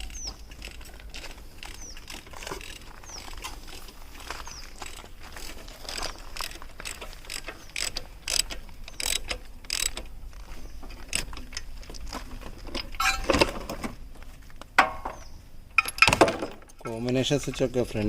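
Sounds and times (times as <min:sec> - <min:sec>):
mechanical clicks: 0:05.9 - 0:10.1
metal clatter: 0:12.4 - 0:14.0.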